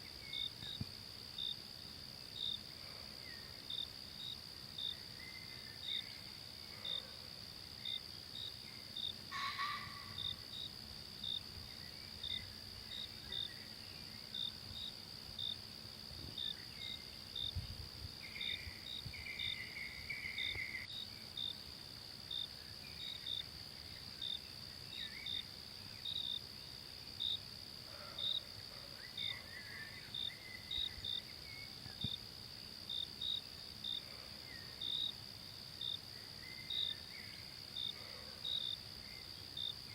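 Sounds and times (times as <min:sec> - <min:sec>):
insects droning: 0:00.0 - 0:39.9
faint bird calls: 0:09.3 - 0:10.4.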